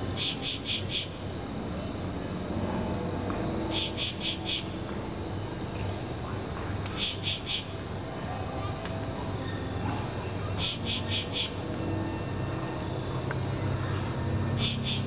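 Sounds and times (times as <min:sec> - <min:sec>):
insect chirping: 0:00.0 - 0:15.0.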